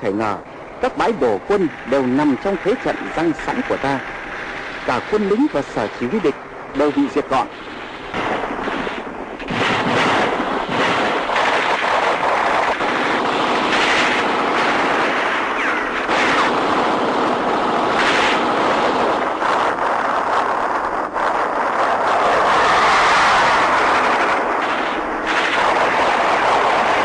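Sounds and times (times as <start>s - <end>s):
steady engine noise: 0.0s - 27.0s
gunfire and blasts: 6.8s - 27.0s.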